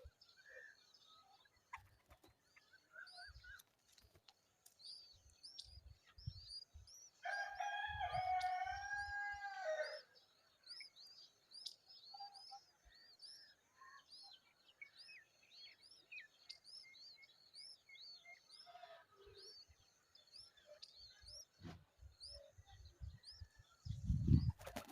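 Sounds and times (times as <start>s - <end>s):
small bird chirping: 1.0s - 7.2s
rooster crowing: 7.2s - 10.0s.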